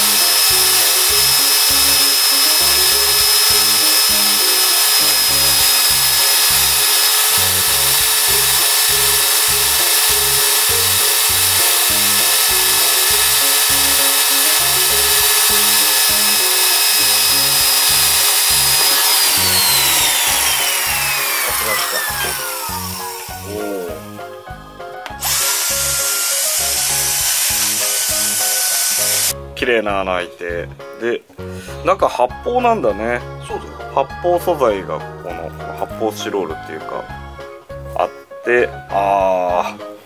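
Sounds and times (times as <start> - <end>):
electric drill boring plastic: 0.0 - 24.2, 25.2 - 29.4.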